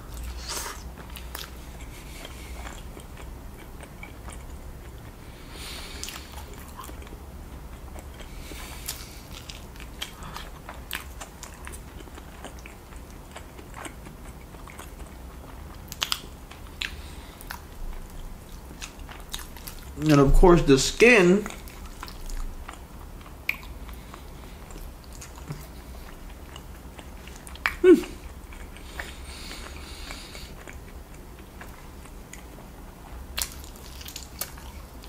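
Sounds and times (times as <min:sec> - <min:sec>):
person chewing chicken: 0:00.0 - 0:20.2, 0:21.4 - 0:35.0.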